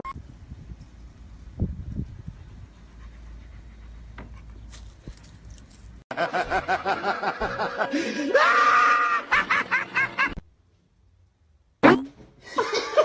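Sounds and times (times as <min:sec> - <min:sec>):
person laughing hard: 0:06.1 - 0:10.4, 0:12.4 - 0:13.0.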